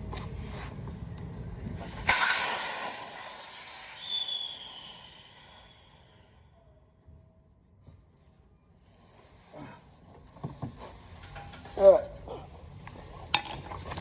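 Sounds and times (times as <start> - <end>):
compressed air hissing: 2.0 - 6.3
falling whistle: 2.1 - 6.8.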